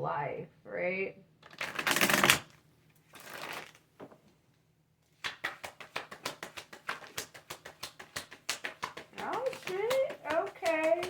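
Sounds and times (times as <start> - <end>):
cards shuffled by hand: 1.4 - 2.5, 3.1 - 3.9, 5.2 - 11.0.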